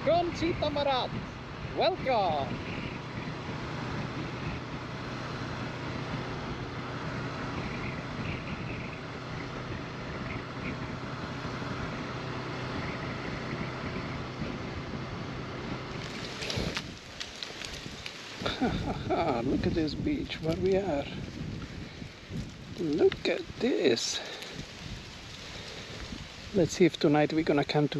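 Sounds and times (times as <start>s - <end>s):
motorcycle engine running: 0.0s - 17.2s
wind rushing over microphone: 0.0s - 27.9s.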